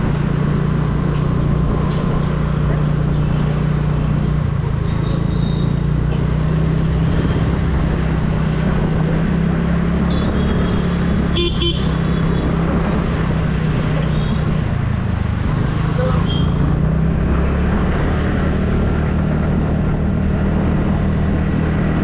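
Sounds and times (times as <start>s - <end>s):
road noise: 0.0s - 22.0s
traffic horns beeping: 4.8s - 5.9s, 10.0s - 12.5s, 16.0s - 16.6s.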